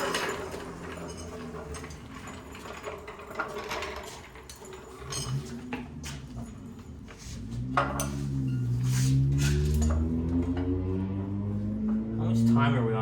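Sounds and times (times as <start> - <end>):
metal tools clinking: 0.0 - 7.0, 9.4 - 10.0.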